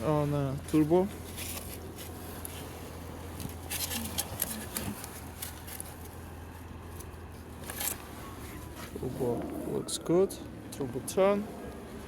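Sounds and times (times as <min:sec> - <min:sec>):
steady low hum: 0:00.0 - 0:12.0
handling clicks and rustles: 0:00.3 - 0:09.8.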